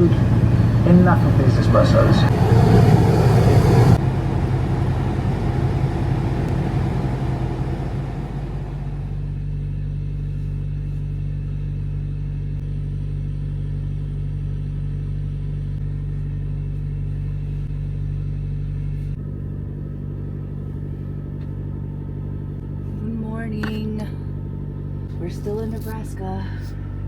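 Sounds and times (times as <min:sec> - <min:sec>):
truck diesel engine idling: 0:00.0 - 0:09.4.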